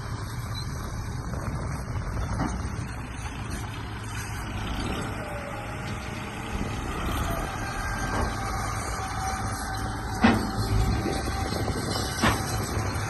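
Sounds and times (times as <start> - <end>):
small electric motors whining: 3.5 - 13.0.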